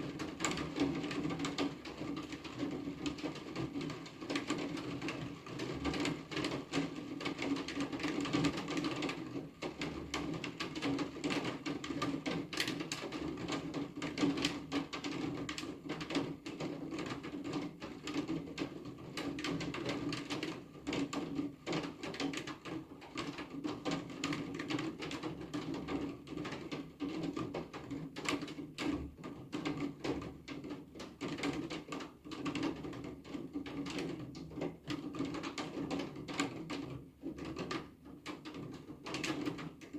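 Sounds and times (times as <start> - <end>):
raindrops ticking on a surface: 0.0 - 39.9.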